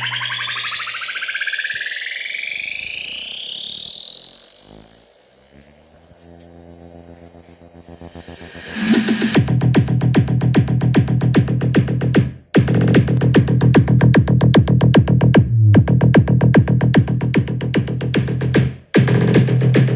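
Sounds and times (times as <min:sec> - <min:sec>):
electronic dance music: 0:00.0 - 0:02.6, 0:08.1 - 0:19.9.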